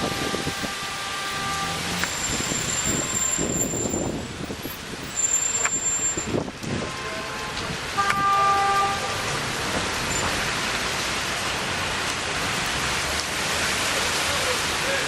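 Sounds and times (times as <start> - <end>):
car horn: 0.0 - 4.1, 6.8 - 9.3
passing traffic: 0.0 - 15.0
rain on wet street: 0.0 - 15.0.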